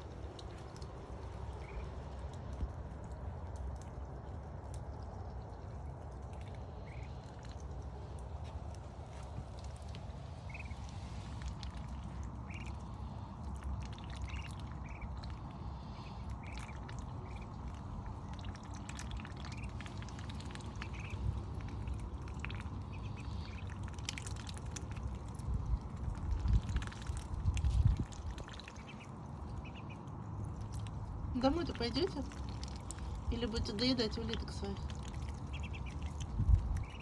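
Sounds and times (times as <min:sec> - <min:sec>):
rain with drips and taps: 0:00.0 - 0:37.0
ducklings peeping: 0:01.3 - 0:01.9, 0:06.2 - 0:07.6, 0:09.6 - 0:11.0, 0:11.7 - 0:25.4, 0:26.0 - 0:30.8, 0:31.4 - 0:37.0.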